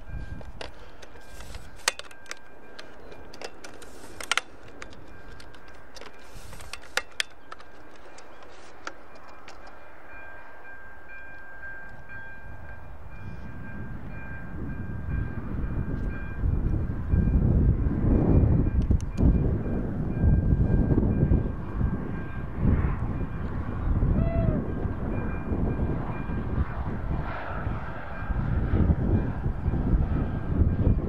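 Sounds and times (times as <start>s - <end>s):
train rumbling: 0.0s - 31.0s
sharp clicks: 0.5s - 9.8s.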